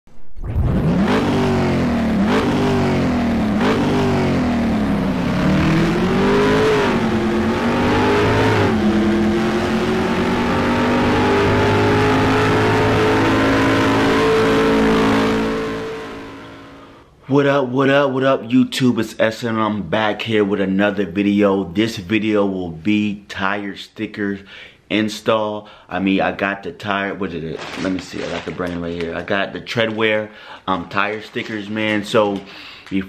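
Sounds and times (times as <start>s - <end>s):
car engine revving: 0.4s - 17.0s.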